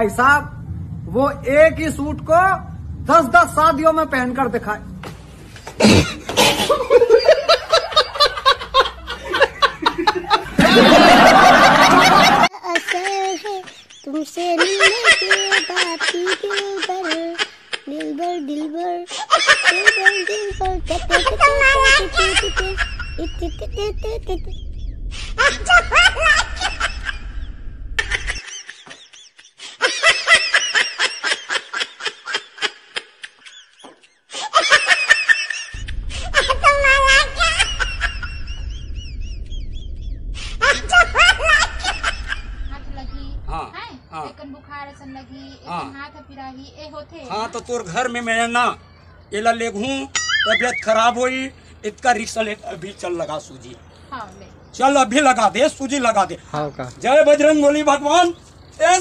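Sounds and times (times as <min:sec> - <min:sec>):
person laughing rhythmically: 0:05.8 - 0:18.2, 0:19.2 - 0:24.6, 0:28.0 - 0:38.6
falling swoosh: 0:20.5 - 0:28.4, 0:35.7 - 0:43.7.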